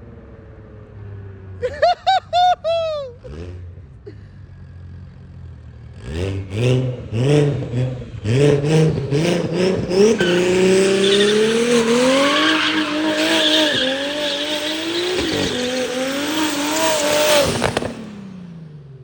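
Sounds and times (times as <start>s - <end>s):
car engine revving hard: 5.9s - 18.5s
tires squealing: 8.6s - 18.1s.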